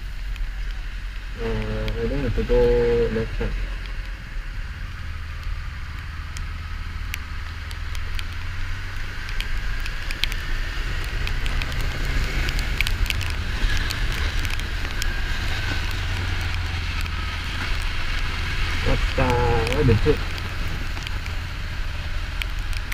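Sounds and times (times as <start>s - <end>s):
sharp ticks: 4.9s - 22.9s.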